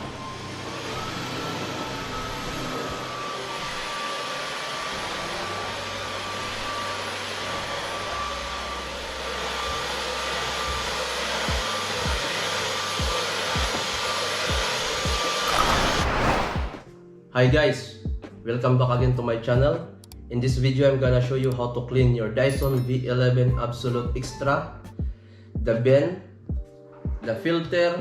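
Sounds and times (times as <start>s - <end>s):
stick vacuum running: 0.0s - 15.7s
background music with bass: 16.8s - 28.0s
kick-drum thumps: 26.5s - 27.2s.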